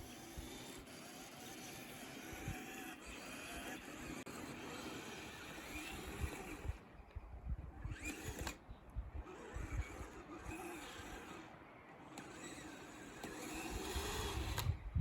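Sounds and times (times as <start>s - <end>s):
electric drive whining: 0.0s - 15.0s
wind thumping on microphone: 13.5s - 15.0s.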